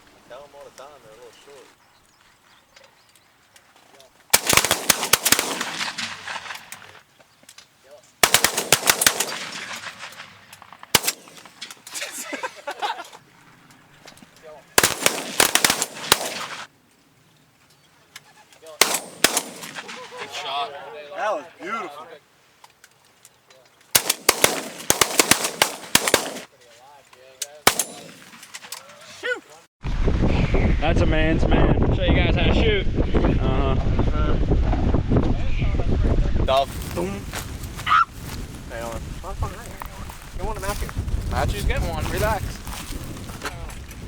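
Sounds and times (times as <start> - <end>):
shotgun volleys echoing: 4.3 - 7.0, 8.2 - 11.8, 14.8 - 16.7, 18.8 - 20.6, 23.9 - 26.5, 27.6 - 29.1.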